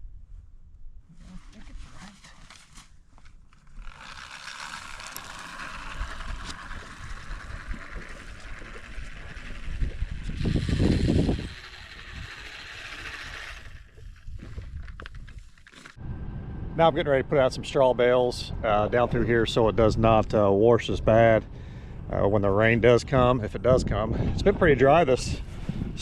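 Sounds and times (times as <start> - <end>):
spreader gear whirring: 3.6 - 15.1
low rumble: 5.0 - 15.2, 16.0 - 26.0.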